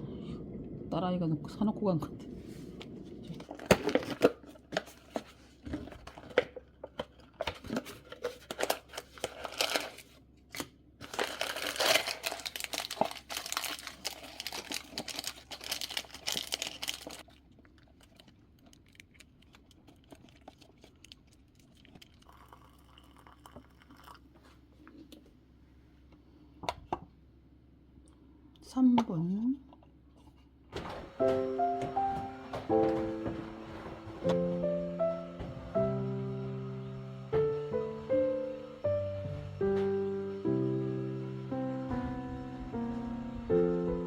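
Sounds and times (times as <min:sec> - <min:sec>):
plastic wrapping tearing and crinkling: 0:03.4 - 0:17.3.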